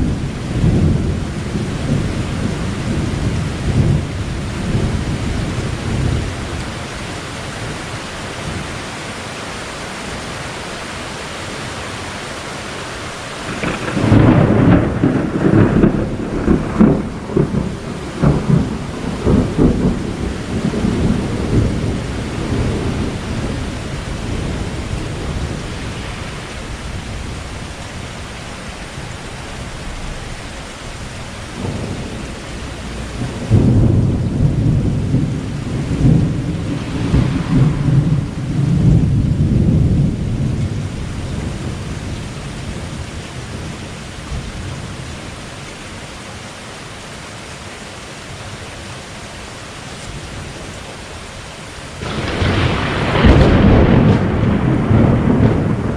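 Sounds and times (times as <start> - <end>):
thunder rumbling: 0.0 - 8.7, 13.4 - 45.4, 51.9 - 55.9
steady rain: 0.0 - 55.9.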